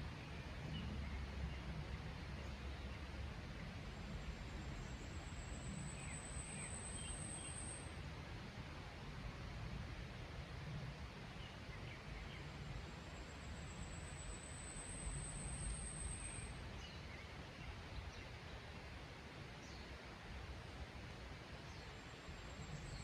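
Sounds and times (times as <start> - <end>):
low rushing forest ambience: 0.0 - 23.0
faint bird chirps: 4.7 - 8.0, 13.2 - 18.2.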